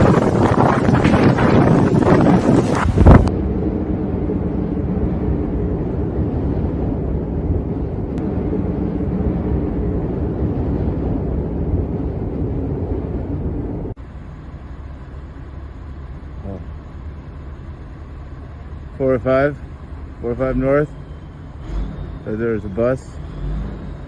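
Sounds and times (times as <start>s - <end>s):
wind buffeting microphone: 0.0s - 14.0s
low vehicle engine drone: 0.0s - 24.0s.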